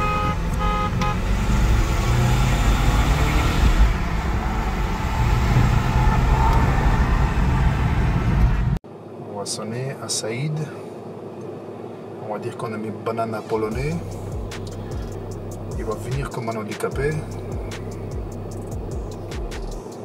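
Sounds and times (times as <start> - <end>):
diesel engine at full throttle: 0.0 - 8.8, 13.7 - 16.3, 17.0 - 19.6
wind and road noise: 0.0 - 20.0.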